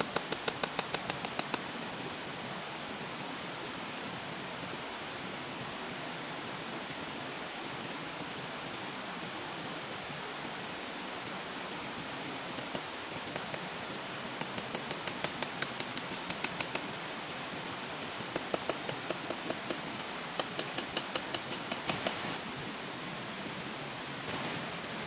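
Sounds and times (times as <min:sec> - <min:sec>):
quick sharp clicks: 0:00.0 - 0:01.6, 0:14.4 - 0:16.8
steady rushing noise: 0:11.7 - 0:25.0.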